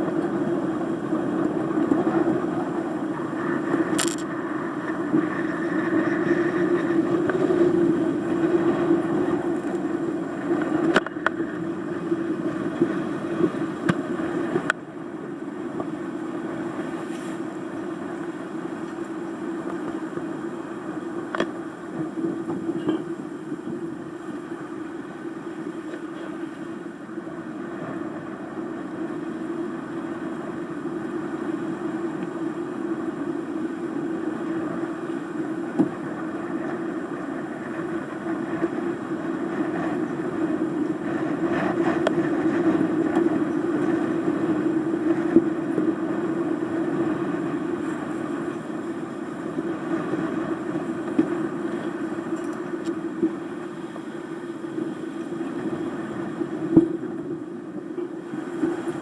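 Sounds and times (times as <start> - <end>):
steady drone: 0.0 - 59.0.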